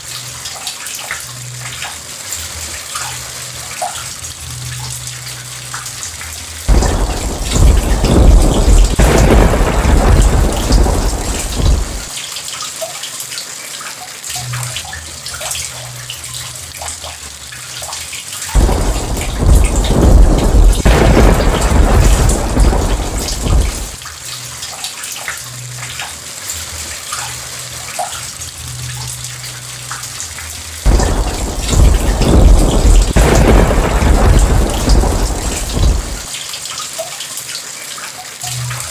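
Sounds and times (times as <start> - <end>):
steady rain with drips: 0.0 - 38.9
thunder rolling: 6.7 - 12.1, 18.6 - 24.0, 30.9 - 36.3.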